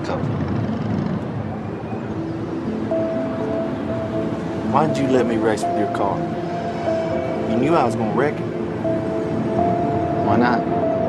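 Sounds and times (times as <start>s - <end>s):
faint music: 1.3s - 11.0s.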